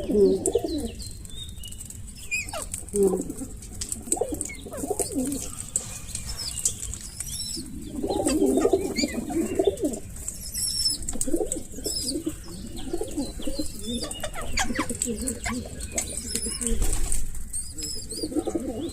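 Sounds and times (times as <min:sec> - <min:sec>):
birds cooing: 0:00.0 - 0:18.9
high bird chirps and squeaks: 0:02.2 - 0:02.9, 0:10.3 - 0:11.1, 0:12.8 - 0:18.2.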